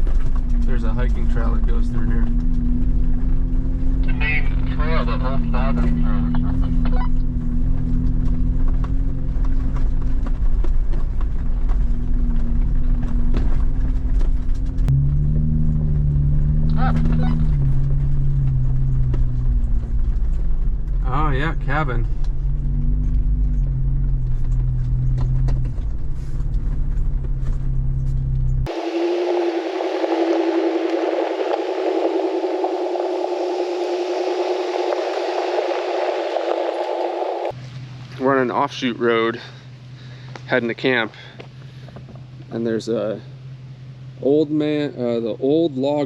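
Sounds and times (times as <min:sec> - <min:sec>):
vehicle engine hum: 0:00.0 - 0:46.0
steady hissing hum: 0:28.7 - 0:37.6.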